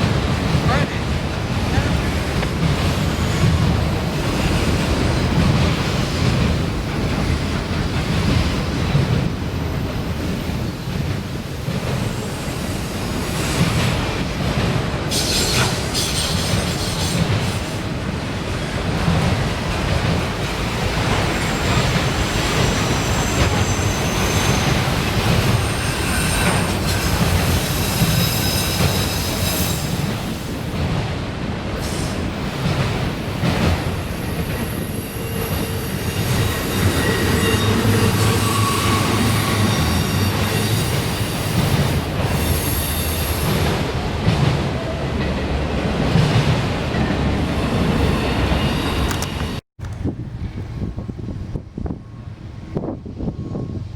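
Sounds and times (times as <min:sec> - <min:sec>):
train wheels rumbling on rails: 0:00.0 - 0:53.9
high wheel squeals: 0:21.4 - 0:30.0, 0:34.0 - 0:41.6.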